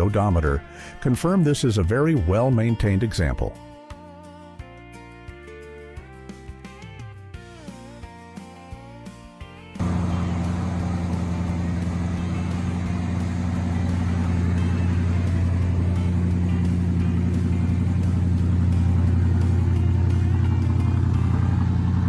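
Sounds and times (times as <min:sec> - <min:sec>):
car engine running with deep hum: 0:09.8 - 0:22.0
guitar music: 0:09.8 - 0:22.0.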